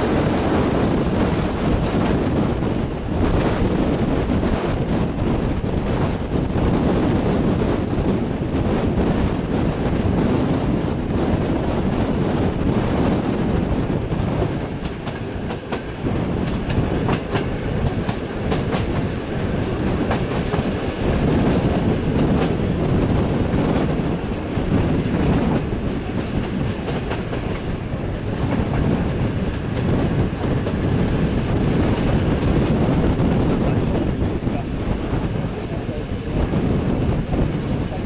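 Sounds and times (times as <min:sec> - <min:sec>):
train wheels rumbling: 0:00.0 - 0:38.0
wheels clattering over rail joints: 0:14.4 - 0:22.7.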